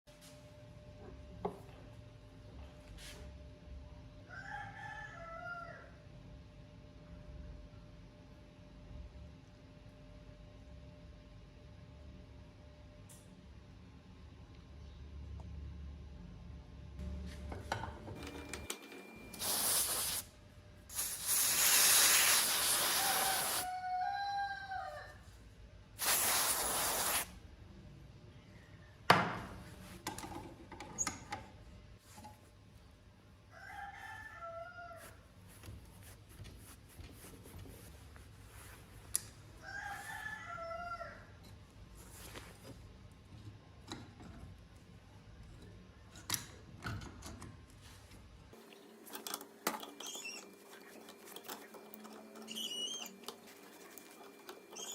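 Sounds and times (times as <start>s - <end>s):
rooster crowing: 4.3s - 6.0s, 23.0s - 25.3s, 33.5s - 35.2s, 39.6s - 41.4s
loud bursts of hissing noise: 20.9s - 23.6s, 26.0s - 27.3s.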